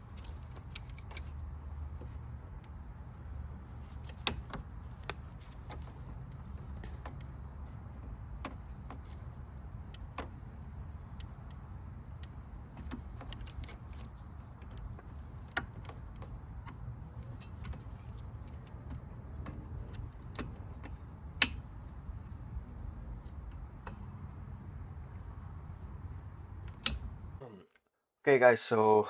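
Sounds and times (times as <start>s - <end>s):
light clicks of tools: 0.0s - 2.8s.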